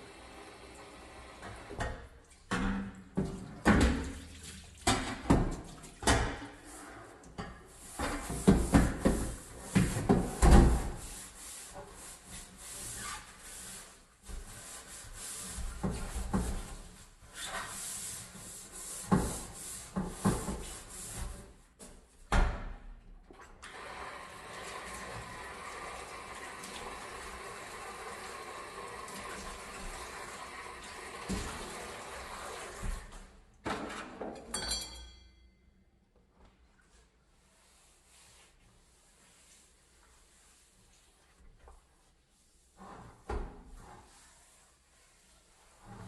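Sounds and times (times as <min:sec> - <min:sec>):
brush scrubbing strokes: 0:07.7 - 0:21.8, 0:36.8 - 0:46.0.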